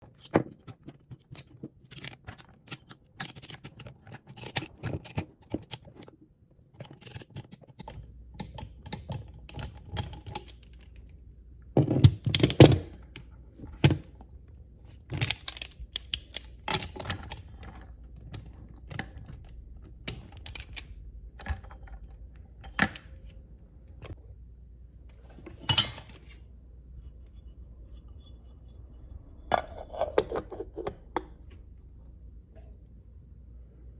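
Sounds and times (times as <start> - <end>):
steady low hum: 15.7 - 33.9.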